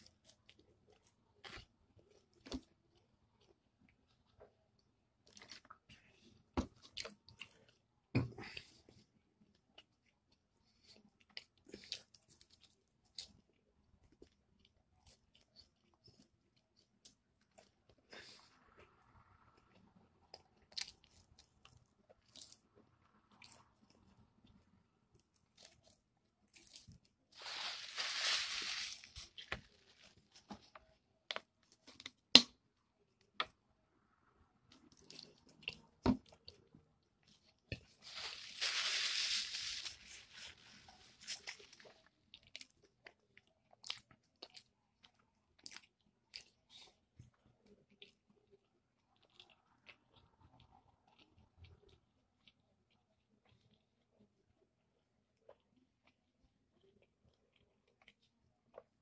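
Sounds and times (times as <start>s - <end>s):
hissy rustling noises: 27.4s - 30.5s, 38.0s - 41.4s
person chewing fried chicken: 34.7s - 59.0s.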